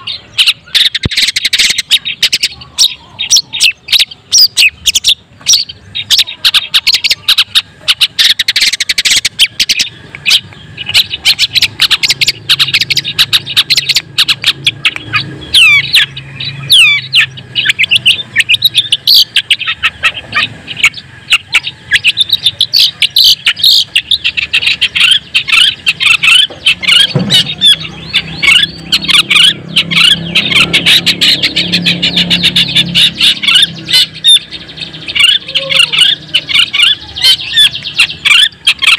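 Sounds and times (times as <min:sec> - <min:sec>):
shrike singing: 0:00.0 - 0:38.9.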